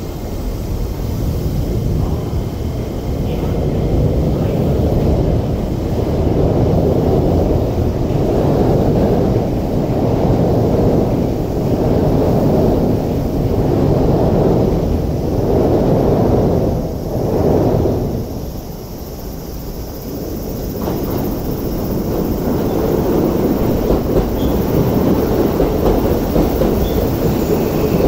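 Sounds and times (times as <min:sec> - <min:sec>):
trains rumbling: 0:00.0 - 0:28.0
wind buffeting microphone: 0:00.0 - 0:28.0.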